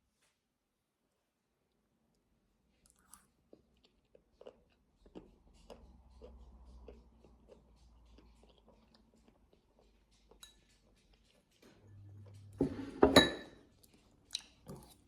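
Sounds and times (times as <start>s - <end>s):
chewing crunchy snack: 2.7s - 12.6s.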